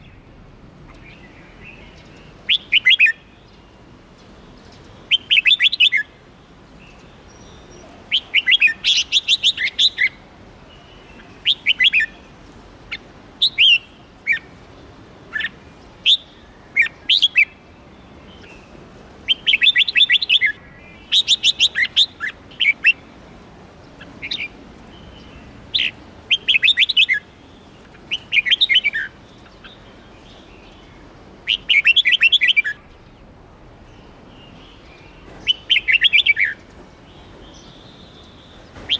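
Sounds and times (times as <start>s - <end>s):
bird singing chattering notes: 34.0s - 38.9s.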